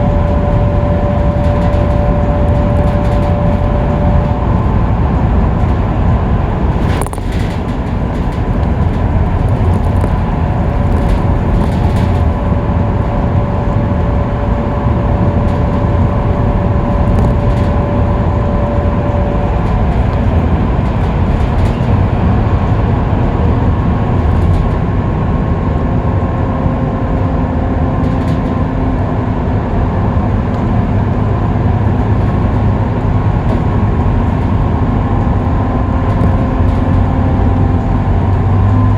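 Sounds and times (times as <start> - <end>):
thin whine: 0.0 - 24.8
bus engine and road rumble: 0.0 - 38.9.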